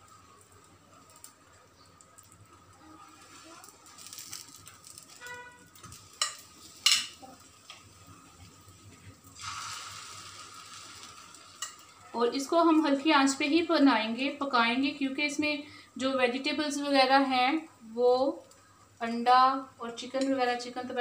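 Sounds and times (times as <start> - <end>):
bread sizzling in oil: 0.0 - 13.9.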